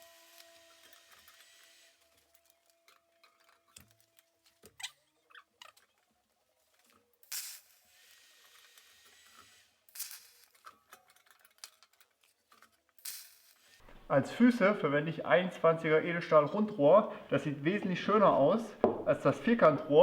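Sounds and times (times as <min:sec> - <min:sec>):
metal parts tapping and clicking: 0:00.8 - 0:04.8, 0:08.5 - 0:13.6.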